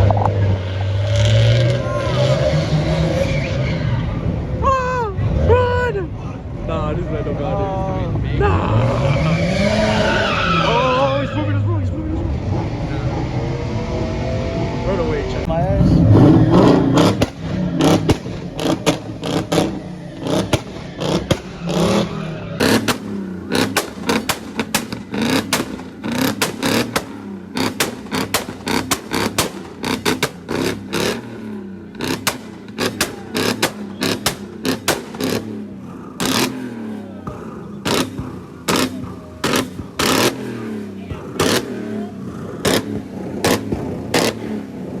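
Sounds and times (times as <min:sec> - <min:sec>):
car engines revving: 0:00.0 - 0:45.0
sharp cracks: 0:16.9 - 0:31.3, 0:32.0 - 0:35.6, 0:37.8 - 0:40.6, 0:42.6 - 0:44.5.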